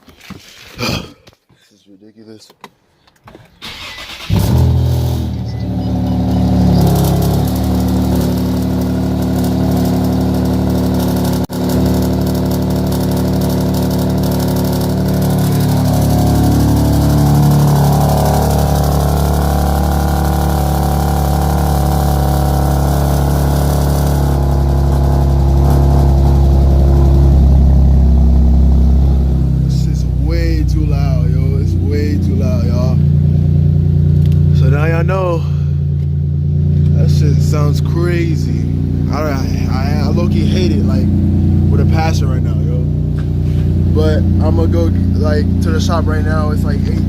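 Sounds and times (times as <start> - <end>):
car engine cold start: 3.5 - 27.8
loud car engine idling: 4.0 - 47.0.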